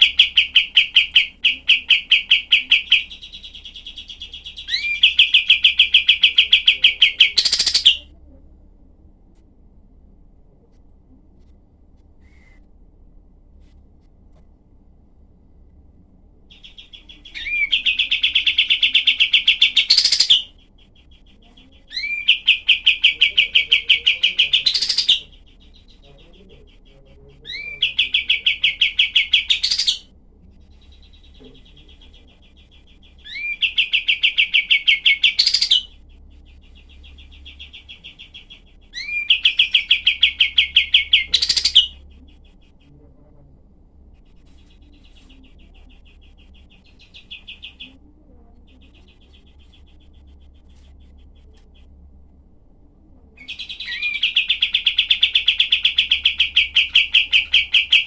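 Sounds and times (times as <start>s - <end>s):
songbird rapid repeated notes: 0.0s - 8.0s, 16.5s - 26.9s, 30.6s - 42.7s
soft bird twittering: 0.0s - 8.2s, 12.1s - 12.7s, 16.5s - 52.1s, 53.4s - 58.0s.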